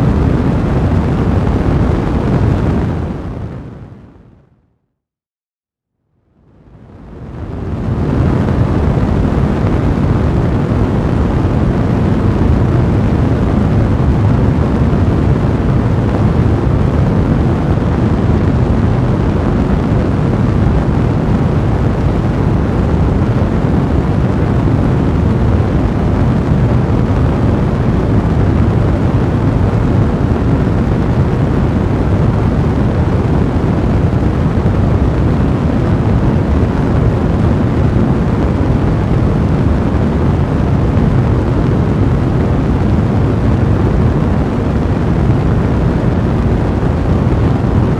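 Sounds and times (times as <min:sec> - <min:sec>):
fire flames rushing: 0:00.0 - 0:03.8, 0:07.0 - 0:47.9.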